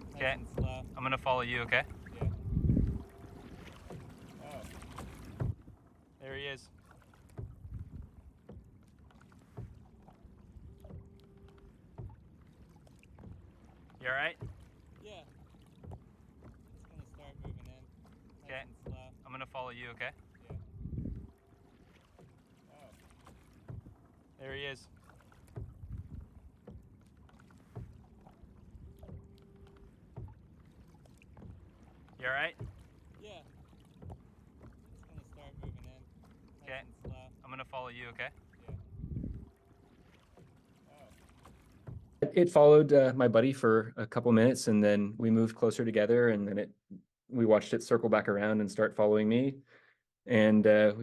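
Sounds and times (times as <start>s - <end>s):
faint steady tone: 0.0s - 5.2s, 8.2s - 23.5s, 26.1s - 32.6s
low knocks: 0.0s - 5.8s, 7.2s - 15.0s, 15.7s - 22.4s, 23.1s - 24.1s, 25.0s - 40.6s, 41.2s - 42.6s
paddle strokes: 0.0s - 42.7s
water lapping against hull: 0.0s - 51.0s.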